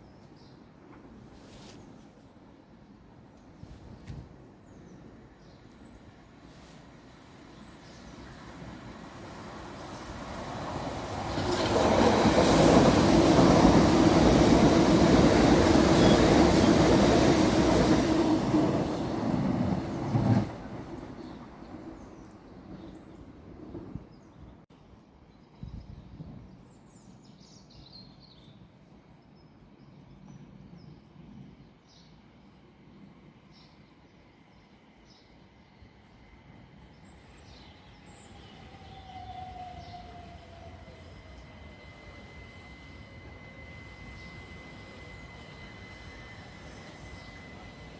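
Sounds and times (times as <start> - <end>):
train passing: 6.0 - 24.1, 32.1 - 47.9.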